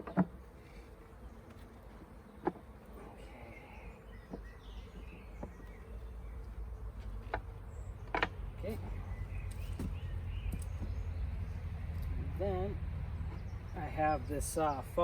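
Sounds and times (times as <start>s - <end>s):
honeybees buzzing: 0.0s - 15.0s
hive parts knocking: 9.6s - 11.1s.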